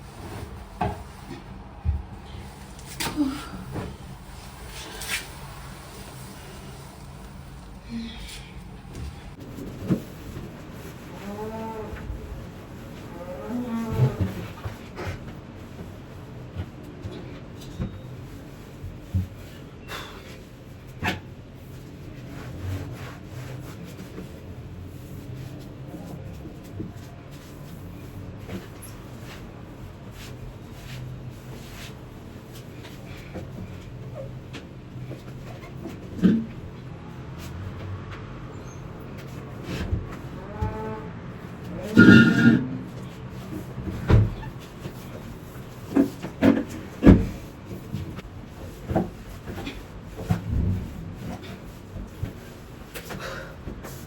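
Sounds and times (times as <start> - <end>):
low steady rumble: 0.0 - 14.4, 47.2 - 52.7.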